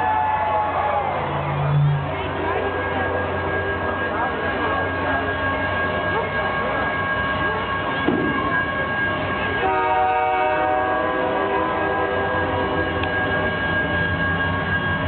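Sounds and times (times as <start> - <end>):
train running noise: 0.0 - 15.0
train horn chord: 1.8 - 4.6, 5.7 - 13.4.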